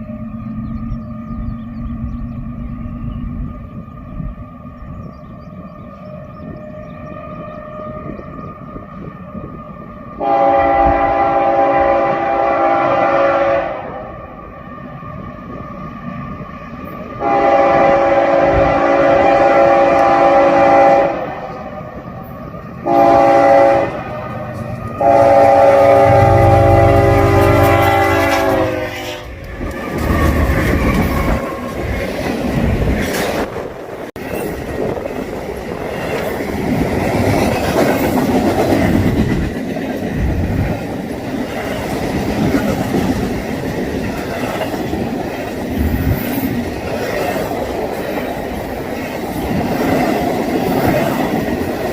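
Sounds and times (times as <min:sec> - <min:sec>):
locomotive horn blasts: 0:10.2 - 0:14.1, 0:17.2 - 0:21.5, 0:22.8 - 0:29.5.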